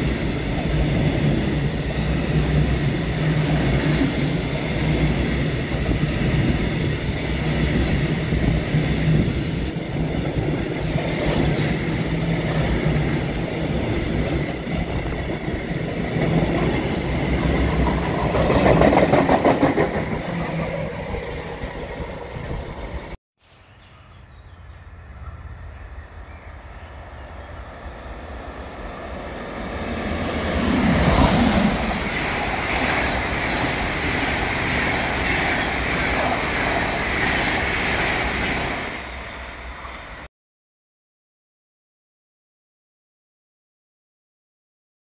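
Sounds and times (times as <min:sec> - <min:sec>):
electric locomotive passing: 0:00.0 - 0:23.2, 0:24.5 - 0:40.3
train hissing: 0:27.2 - 0:40.3.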